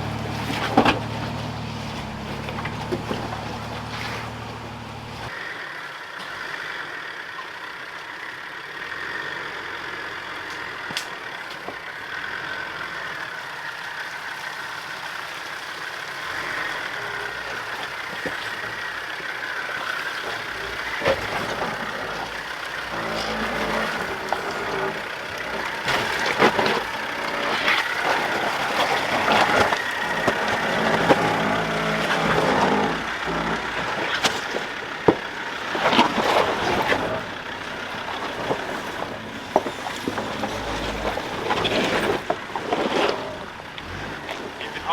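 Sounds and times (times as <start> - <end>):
knocks and clunks: 0.0 - 5.3
off-road engine at low speed: 0.0 - 44.9.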